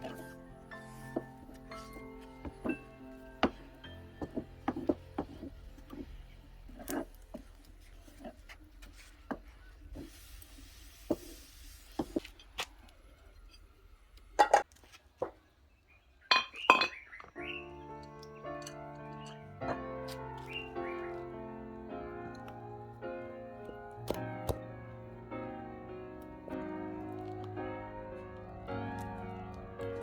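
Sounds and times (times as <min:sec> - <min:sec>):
dishes and utensils clinking: 0:16.3 - 0:17.1.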